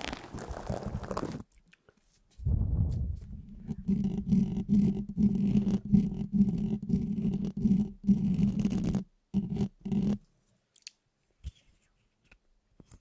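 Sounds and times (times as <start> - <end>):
steady low hum: 2.4 - 9.9
rapid scraping strokes: 2.7 - 10.2.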